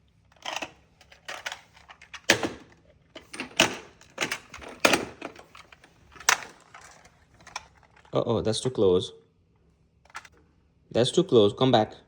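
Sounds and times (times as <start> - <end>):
toys knocking and clacking: 0.3 - 8.1, 10.1 - 10.4.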